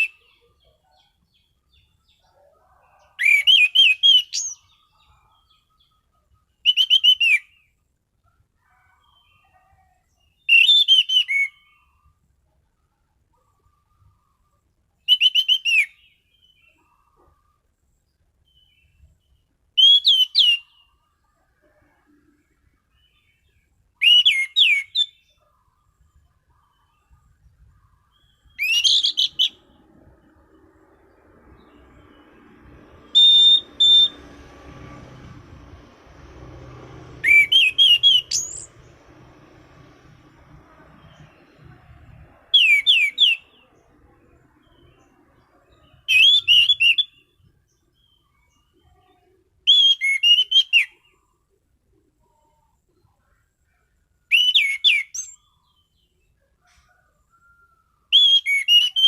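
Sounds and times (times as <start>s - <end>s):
thrush whistling song: 0.0s - 7.8s, 10.2s - 12.1s, 13.6s - 17.1s, 18.4s - 21.0s, 23.2s - 47.5s, 49.6s - 51.2s, 54.3s - 55.5s, 56.9s - 59.0s.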